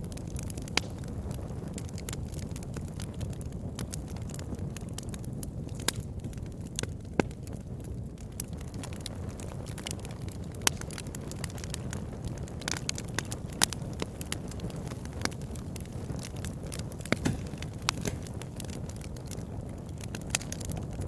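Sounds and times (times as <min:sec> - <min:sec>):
campfire rumble: 0:00.0 - 0:21.0
fire crackling and popping: 0:00.0 - 0:21.0.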